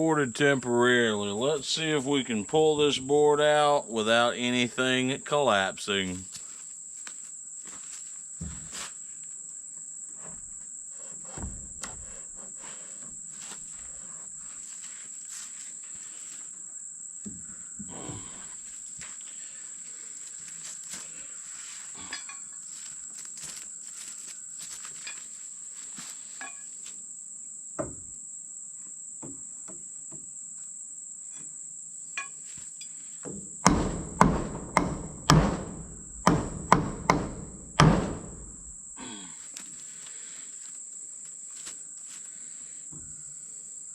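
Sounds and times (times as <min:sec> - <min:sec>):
insect drone: 0:00.0 - 0:43.9
heavy hammer blows on wood: 0:33.6 - 0:38.8.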